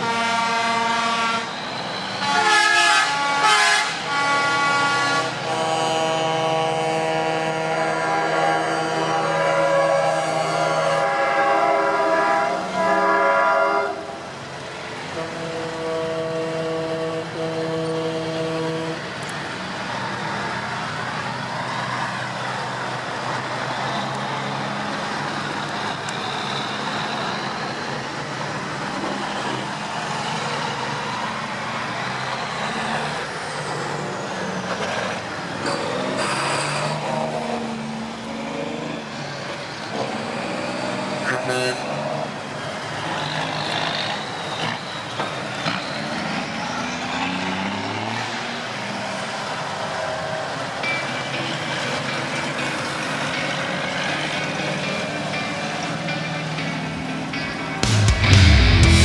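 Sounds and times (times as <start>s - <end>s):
truck air horns: 0.0s - 14.3s, 15.0s - 19.2s, 41.0s - 42.2s
trucks running: 0.0s - 59.0s.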